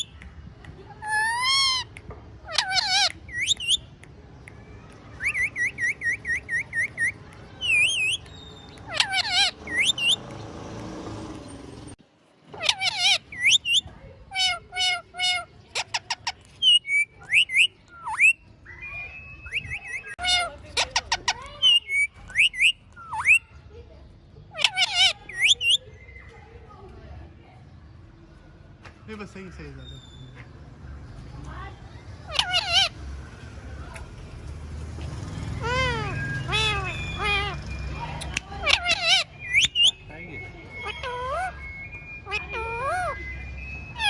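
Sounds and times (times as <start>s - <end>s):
parrot calling: 1.0s - 3.9s, 5.1s - 10.4s, 12.5s - 23.5s, 24.5s - 25.9s, 32.2s - 44.0s.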